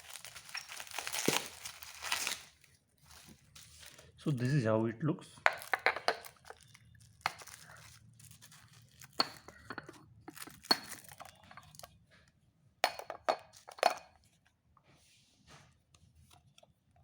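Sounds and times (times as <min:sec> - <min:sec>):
glass boxes knocking and clinking: 0:05.5 - 0:06.7, 0:09.0 - 0:11.8, 0:12.9 - 0:14.1.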